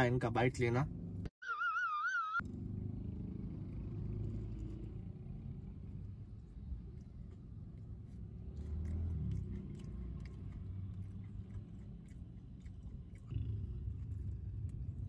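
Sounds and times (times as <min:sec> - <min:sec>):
low background rumble: 0:02.8 - 0:15.0
person chewing crunchy food: 0:04.0 - 0:15.0.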